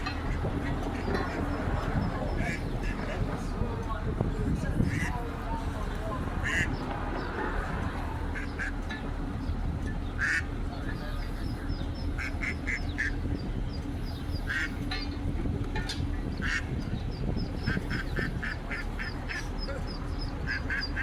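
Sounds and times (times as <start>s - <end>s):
ducklings peeping: 0.0s - 3.3s, 6.4s - 6.9s, 8.3s - 8.8s, 9.4s - 15.2s, 16.2s - 21.0s
duck quacking: 0.2s - 3.2s, 6.4s - 6.8s, 10.2s - 10.5s, 12.2s - 13.2s, 14.4s - 14.7s, 16.4s - 16.7s, 17.6s - 21.0s.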